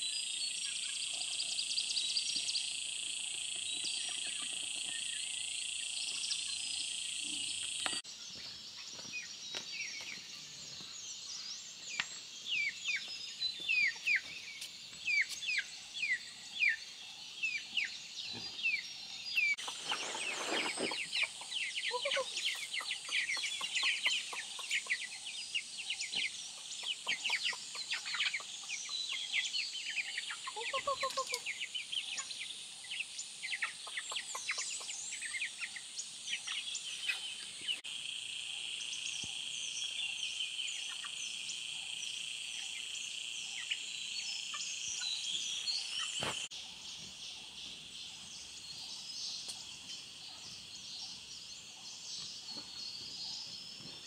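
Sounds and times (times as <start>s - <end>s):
birds chirping: 0.0s - 54.0s
bird clucks: 19.6s - 25.0s
insect drone: 37.8s - 54.0s.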